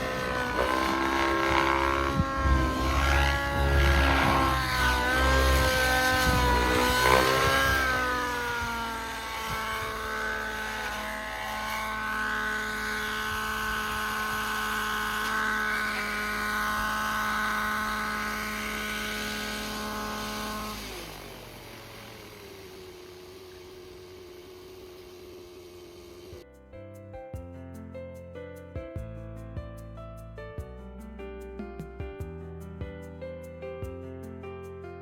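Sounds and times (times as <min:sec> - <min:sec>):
model helicopter engine and rotor: 0:00.0 - 0:26.4.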